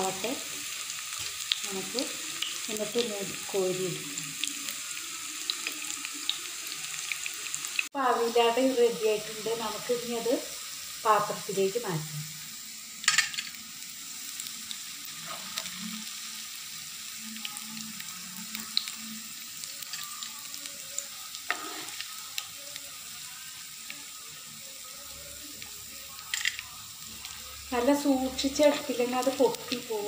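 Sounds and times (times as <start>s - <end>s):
food sizzling in oil: 0.0s - 30.0s
metal spoon scraping pan: 21.4s - 22.2s.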